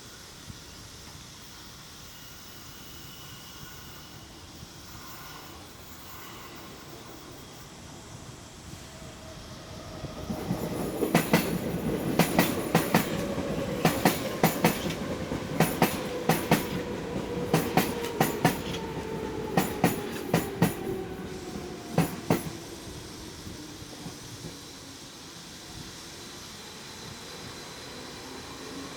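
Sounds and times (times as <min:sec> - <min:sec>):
train rumble: 0:03.6 - 0:28.8
train wheels clicking over joints: 0:09.8 - 0:24.7.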